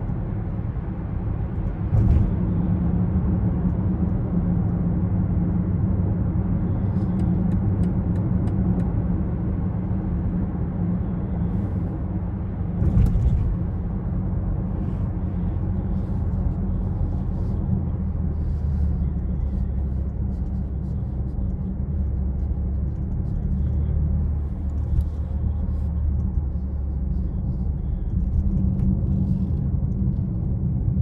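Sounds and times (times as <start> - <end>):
road hum: 0.0 - 31.0
short thump: 1.9 - 2.4.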